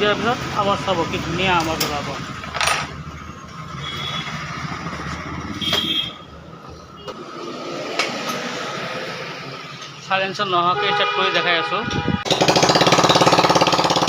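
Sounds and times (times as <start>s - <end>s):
scooter engine running: 12.2s - 14.0s.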